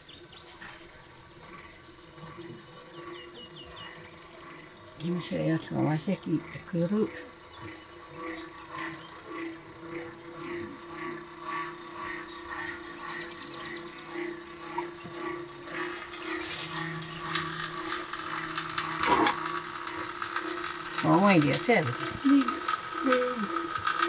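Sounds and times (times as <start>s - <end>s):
machine whirring with pulse: 0.0s - 24.0s
liquid splashing: 14.1s - 24.0s.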